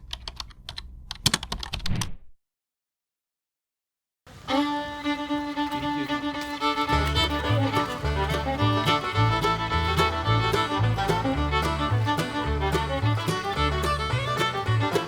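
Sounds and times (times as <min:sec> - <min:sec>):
bass beat: 0:06.2 - 0:15.0.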